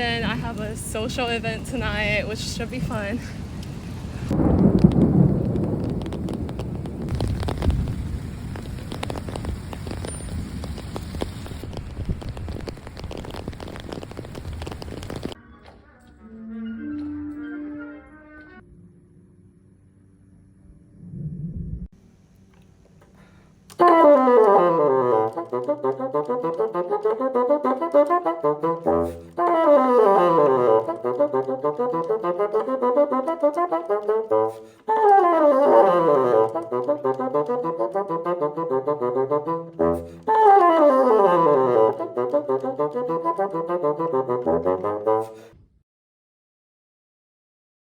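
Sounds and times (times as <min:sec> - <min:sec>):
bassoon playing fast passage: 0:23.7 - 0:45.5.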